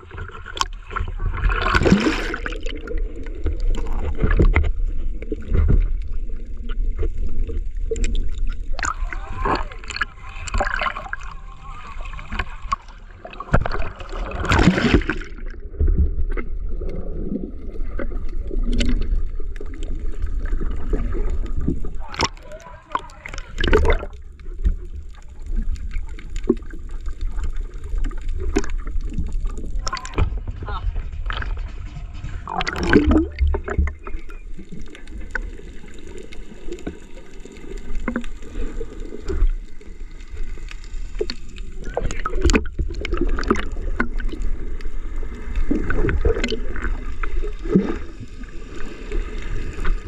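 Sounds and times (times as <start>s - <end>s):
water splashing: 0.0s - 50.0s
low boat engine rumble: 17.6s - 40.4s.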